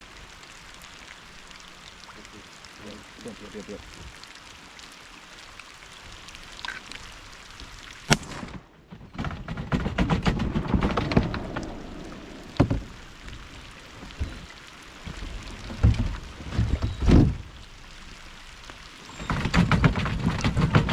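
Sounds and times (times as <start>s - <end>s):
rain pattering: 0.0s - 20.9s
shotgun shot: 8.1s - 8.6s
jumbled knocks and rustling: 8.9s - 17.6s, 18.7s - 20.9s.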